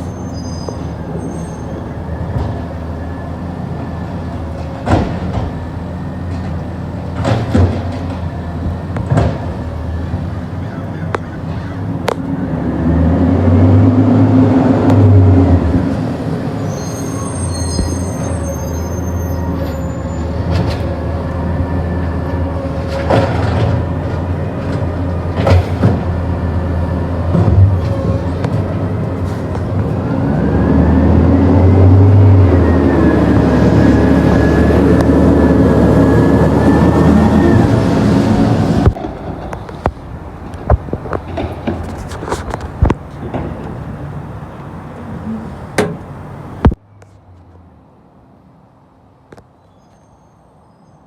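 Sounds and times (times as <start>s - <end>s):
brief high squeals: 0.0s - 1.8s, 16.6s - 20.3s, 49.7s - 51.0s
diesel engine revving: 0.0s - 40.7s.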